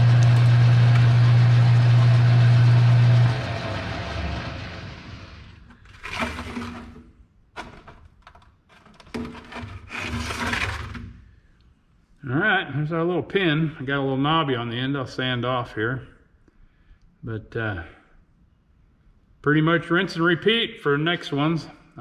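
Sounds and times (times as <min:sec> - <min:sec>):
machine winding down: 0:00.0 - 0:06.9
electric shop machine humming: 0:00.0 - 0:07.0
parts clattering and knocking: 0:05.6 - 0:11.3.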